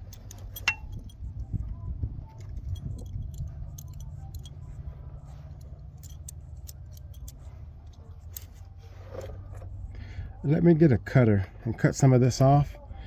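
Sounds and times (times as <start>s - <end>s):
metallic clicks from handling tools: 0.0s - 1.2s, 2.4s - 4.8s, 5.5s - 8.6s
steady low hum: 0.0s - 12.0s.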